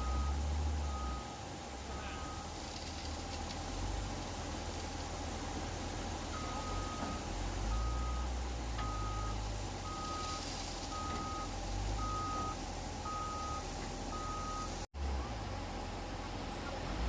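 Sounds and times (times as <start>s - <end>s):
reversing alarm beeping: 0.0s - 2.5s, 6.3s - 14.8s
diesel engine rumble: 0.0s - 17.0s.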